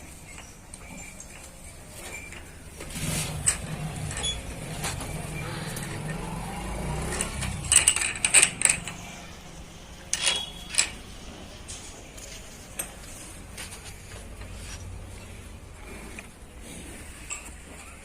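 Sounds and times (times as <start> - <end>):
metal clinking and clanking: 0.2 - 9.4, 10.0 - 11.9.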